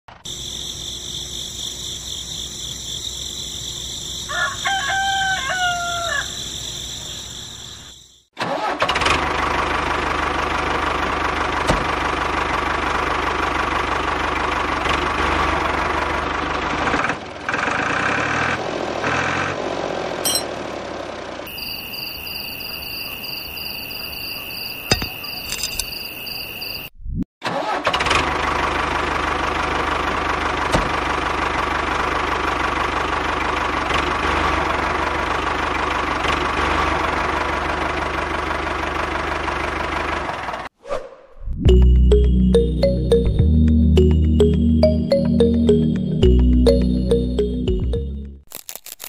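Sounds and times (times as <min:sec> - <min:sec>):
rooster crowing: 0:04.3 - 0:06.7.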